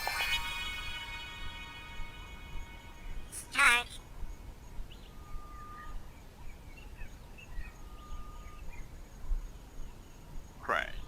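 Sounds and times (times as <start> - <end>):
bird chirps: 0.0 - 11.0.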